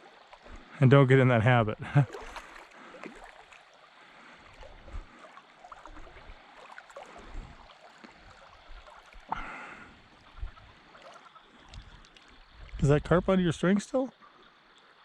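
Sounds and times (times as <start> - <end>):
shallow water gurgling: 0.0 - 15.0
water splash: 1.9 - 3.6.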